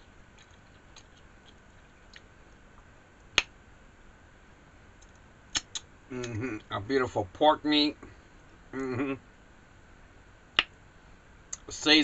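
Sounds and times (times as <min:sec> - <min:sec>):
person chewing food: 0:00.2 - 0:02.3
wet mouth clicks: 0:00.4 - 0:02.3, 0:05.5 - 0:06.7.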